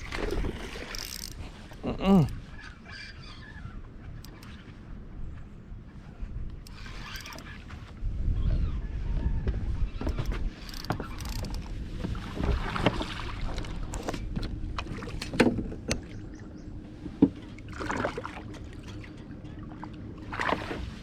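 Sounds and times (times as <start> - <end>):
knocks and clicks on a boat: 3.8 - 5.5, 6.4 - 21.0.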